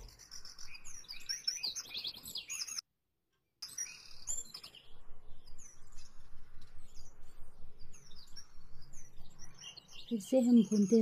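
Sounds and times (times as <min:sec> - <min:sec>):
small birds chirping: 0:00.0 - 0:02.8, 0:03.6 - 0:11.0.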